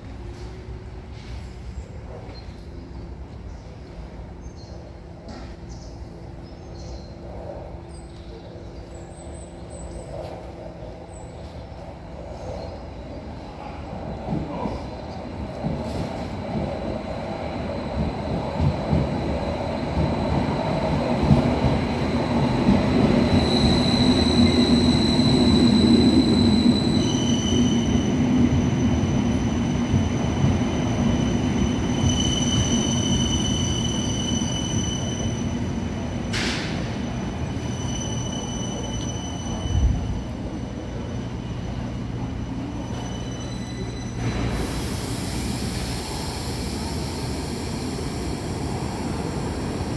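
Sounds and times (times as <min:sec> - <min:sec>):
subway train rumble: 0:00.0 - 0:49.9
wheel squeal: 0:36.3 - 0:40.3, 0:42.5 - 0:44.6.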